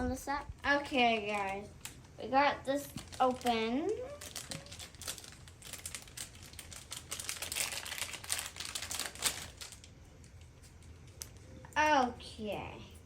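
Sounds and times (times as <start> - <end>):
plastic packaging crinkling: 0.5 - 11.6.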